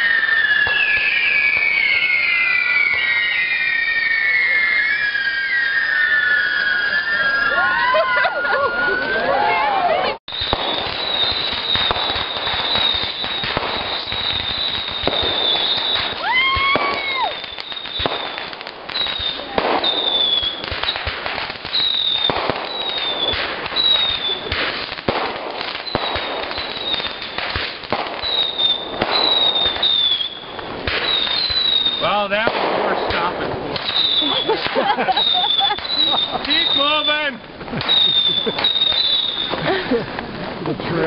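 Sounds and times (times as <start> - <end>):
low rising and falling whistle: 0.0 - 9.4, 28.2 - 30.6, 31.2 - 32.2
high firework whistles: 0.0 - 9.6, 10.2 - 40.5
fireworks crackling: 0.0 - 41.0.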